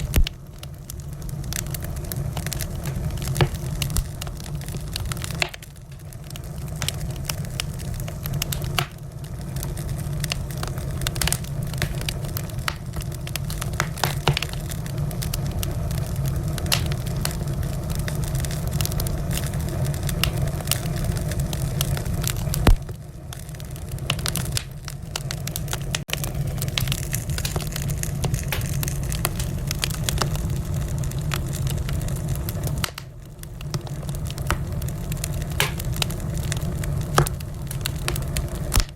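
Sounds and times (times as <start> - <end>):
low rumble of flames: 0.0 - 38.9
wood fire crackling and popping: 0.0 - 38.9.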